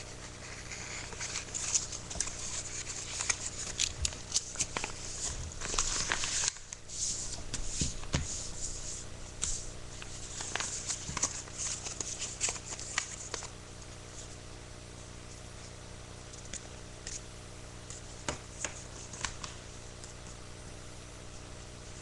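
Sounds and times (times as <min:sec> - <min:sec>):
paper rustling and crinkling: 0:00.1 - 0:13.5, 0:18.2 - 0:20.2.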